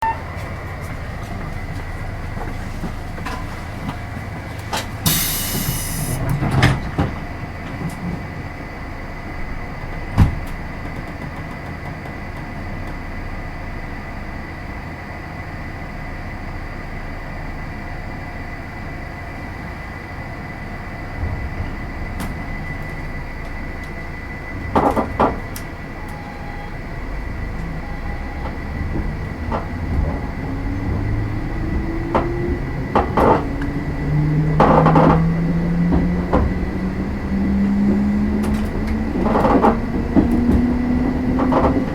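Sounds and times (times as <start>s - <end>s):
train car hum and rumble: 0.0s - 41.9s
short loud hiss: 5.0s - 6.2s
rising tone: 25.7s - 41.9s.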